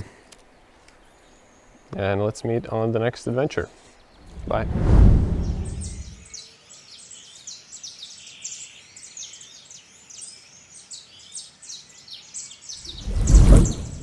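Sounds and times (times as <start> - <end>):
songbirds chirping: 0.0 - 14.0
loud low rushing burst: 4.3 - 6.2.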